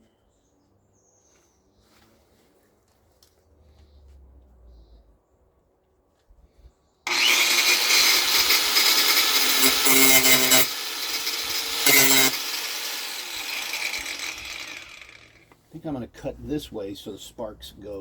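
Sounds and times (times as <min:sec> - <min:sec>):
angle grinder cutting metal: 0:07.1 - 0:15.4.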